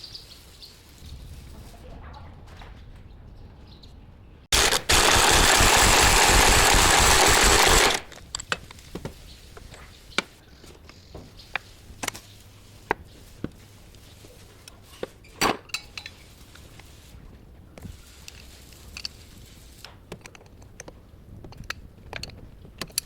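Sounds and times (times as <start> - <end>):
power tool hammering: 4.5 - 8.2.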